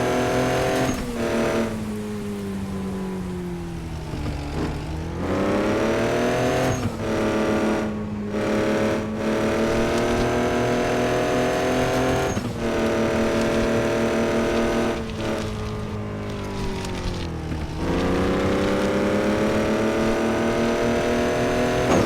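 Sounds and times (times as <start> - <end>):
truck engine accelerating: 0.0 - 22.0.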